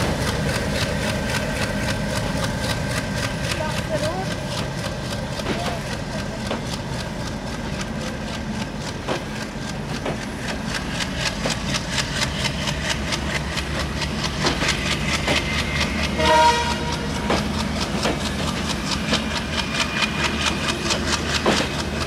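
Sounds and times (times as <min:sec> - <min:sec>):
diesel locomotive drone: 0:00.0 - 0:22.0
train wheels clacking over rail joints: 0:00.0 - 0:22.0.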